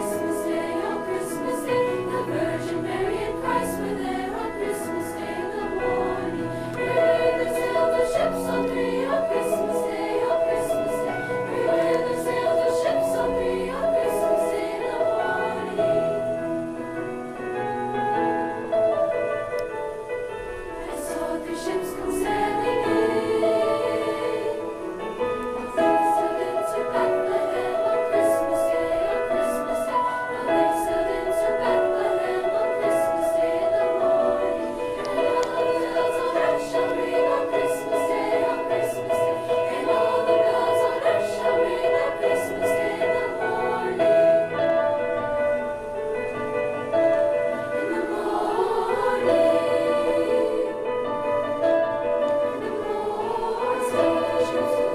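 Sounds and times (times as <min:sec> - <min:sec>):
choir singing in harmony: 0:00.0 - 0:54.9.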